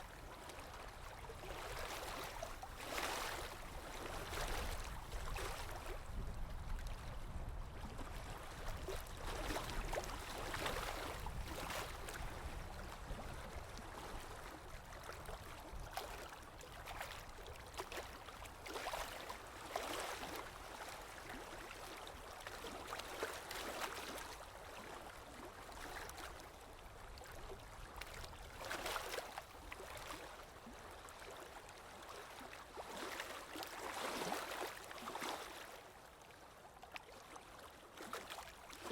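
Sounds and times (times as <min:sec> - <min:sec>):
sea waves lapping: 0:00.0 - 0:06.0, 0:09.3 - 0:12.6, 0:15.4 - 0:26.5, 0:27.2 - 0:35.8.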